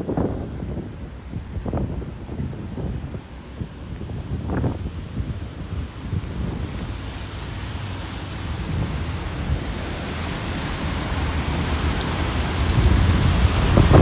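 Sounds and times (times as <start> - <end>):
heavy rain hiss: 0.0 - 14.0
low wind rumble on microphone: 0.0 - 14.0.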